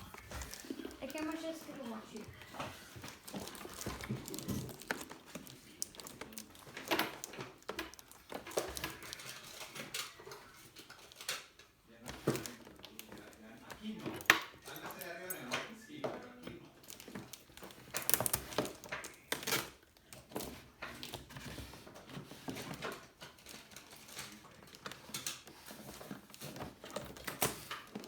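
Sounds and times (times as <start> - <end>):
plastic and cardboard rustling: 0.0 - 28.0.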